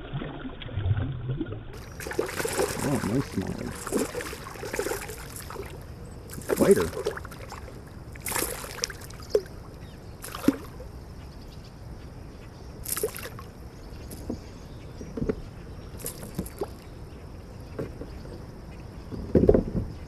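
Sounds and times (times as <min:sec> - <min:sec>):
fish splashing in water: 0:00.0 - 0:10.9, 0:12.8 - 0:13.5, 0:16.0 - 0:16.8.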